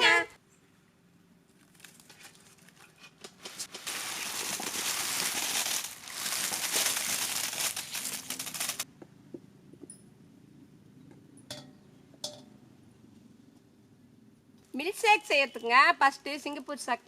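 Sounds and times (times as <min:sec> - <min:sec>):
plastic wrappers crinkling: 0:01.5 - 0:08.8.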